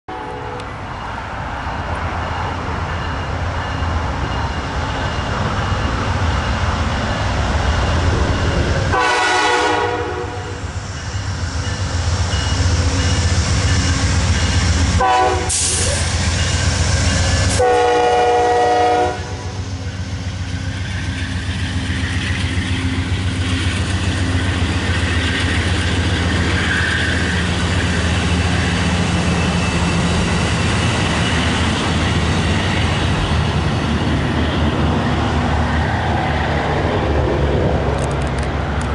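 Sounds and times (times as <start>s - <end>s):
train horn blasts: 0.1s - 0.7s, 8.9s - 10.6s, 14.9s - 16.1s, 17.0s - 19.7s
diesel locomotive engine rumble: 0.1s - 38.9s
train wheels rumbling on rails: 0.2s - 38.9s.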